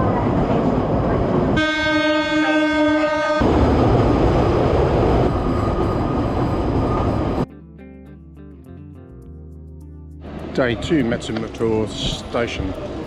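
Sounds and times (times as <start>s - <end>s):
train rumbling: 0.0s - 7.5s, 10.3s - 13.0s
train horn: 1.6s - 3.5s.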